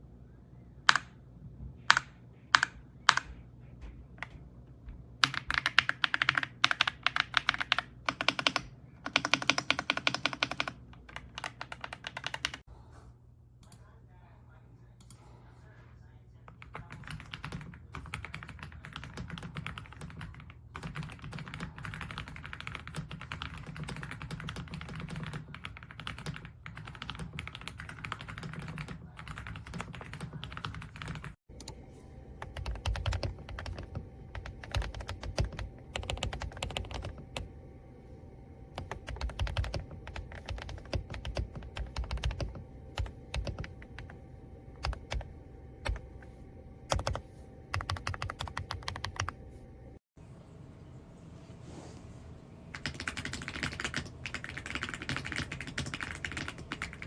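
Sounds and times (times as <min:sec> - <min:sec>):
fast typing on mechanical keyboard: 0:01.9 - 0:03.3, 0:05.2 - 0:12.7, 0:16.5 - 0:31.4, 0:32.4 - 0:37.4, 0:38.8 - 0:44.2, 0:44.8 - 0:45.2, 0:46.9 - 0:49.4, 0:52.7 - 0:57.0.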